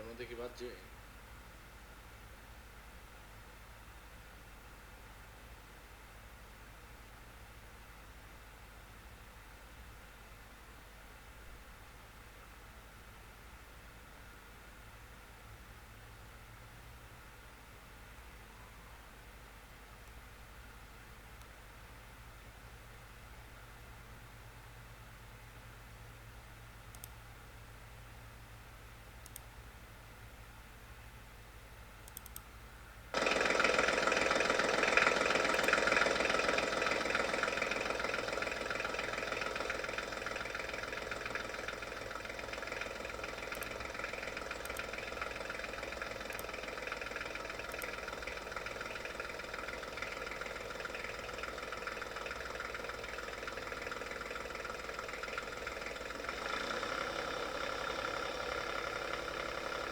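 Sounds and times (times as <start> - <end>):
engine running steadily: 33.1 - 59.9.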